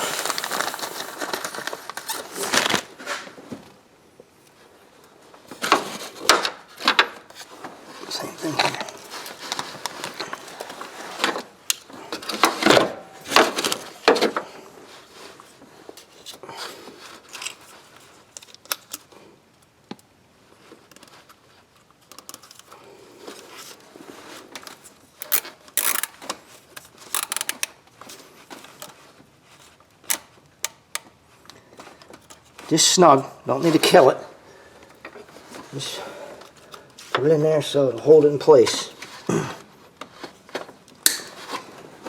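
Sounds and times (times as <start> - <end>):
hand tools clicking and scraping: 16.0 - 19.1, 24.4 - 29.0, 40.9 - 42.0.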